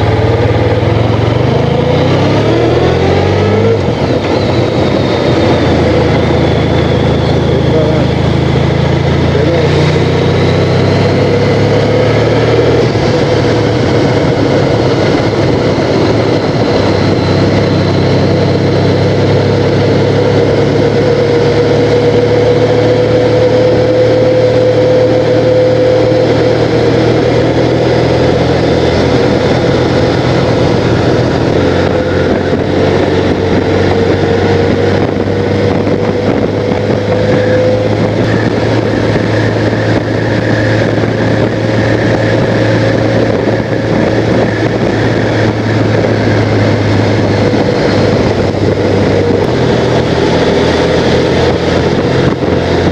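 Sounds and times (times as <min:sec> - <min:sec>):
motorcycle engine cruising: 0:00.0 - 0:52.9
wind rushing over microphone: 0:00.0 - 0:52.9.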